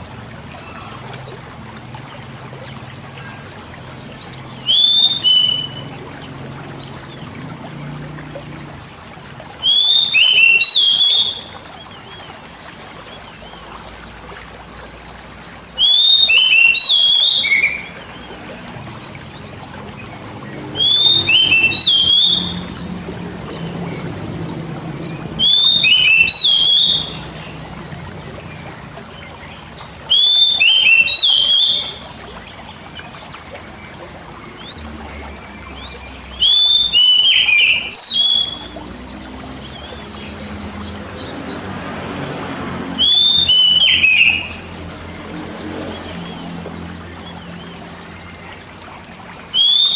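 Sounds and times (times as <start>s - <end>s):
bird whistled song: 4.0s - 7.6s, 9.6s - 12.3s, 15.8s - 18.5s, 20.7s - 22.8s, 25.0s - 33.1s, 34.4s - 41.3s, 43.0s - 45.2s, 49.5s - 49.9s.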